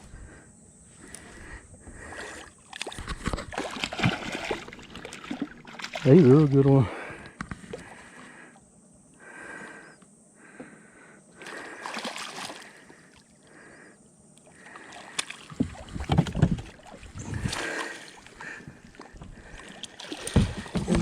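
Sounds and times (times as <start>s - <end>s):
fish thrashing and splashing water: 2.1s - 6.5s, 11.4s - 12.8s, 14.6s - 21.0s.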